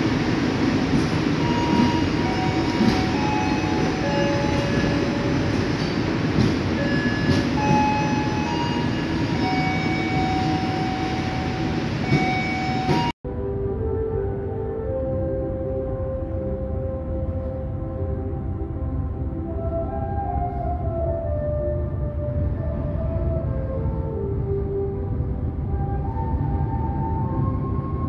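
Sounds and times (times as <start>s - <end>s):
train wheels rumbling on rails: 0.0s - 13.2s.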